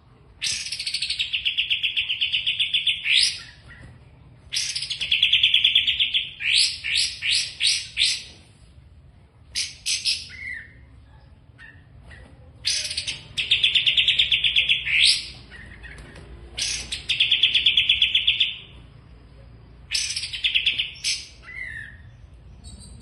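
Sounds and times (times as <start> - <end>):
songbird trilling: 16.6 - 18.8.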